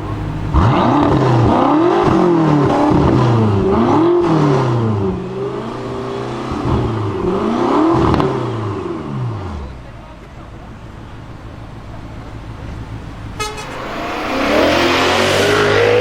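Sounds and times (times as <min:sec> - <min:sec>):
car engine revving hard: 0:00.0 - 0:09.7, 0:13.4 - 0:16.0.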